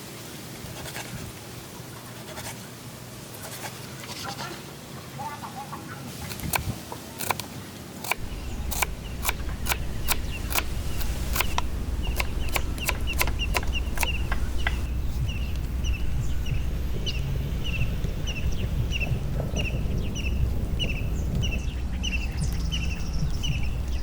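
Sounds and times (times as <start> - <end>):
bird chirping: 8.0 - 24.0.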